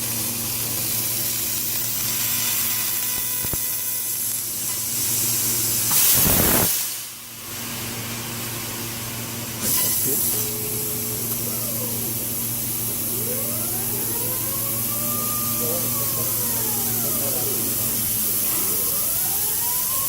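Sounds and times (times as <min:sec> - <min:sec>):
low machine hum: 0:07.8 - 0:20.0.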